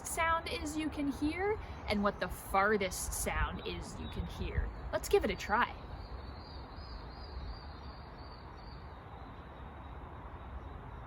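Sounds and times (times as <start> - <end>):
distant traffic hum: 0.0 - 11.0.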